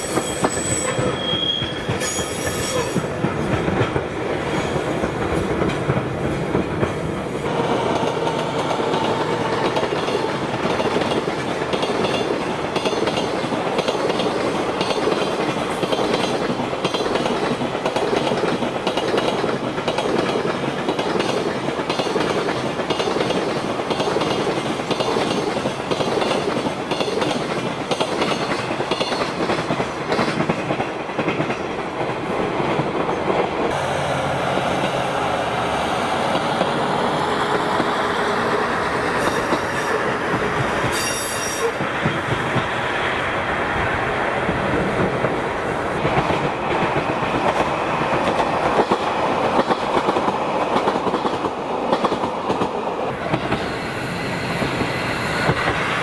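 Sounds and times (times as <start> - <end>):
high-pitched train squeals: 0.0 - 3.1, 38.6 - 40.2, 40.8 - 42.3, 53.4 - 56.0
train wheels clicking over rail joints: 0.0 - 33.8, 44.4 - 56.0
steady train rolling: 0.0 - 56.0.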